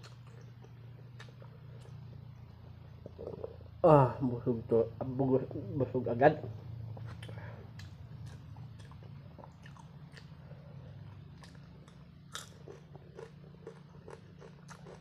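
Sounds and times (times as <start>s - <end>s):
man chewing food: 0.0s - 3.8s, 6.8s - 15.0s
low hum: 0.0s - 15.0s.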